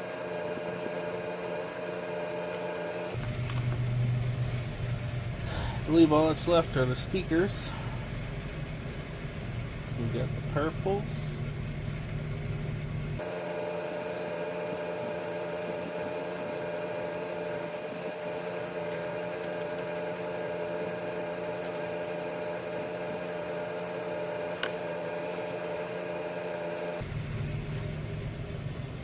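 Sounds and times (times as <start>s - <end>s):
small motor whirring: 0.0s - 5.1s, 13.2s - 27.1s.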